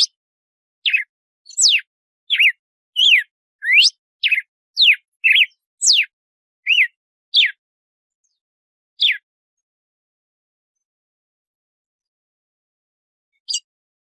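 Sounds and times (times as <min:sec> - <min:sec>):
bird whistling song: 0:00.0 - 0:00.2, 0:00.8 - 0:07.6, 0:09.0 - 0:09.3, 0:13.4 - 0:13.7.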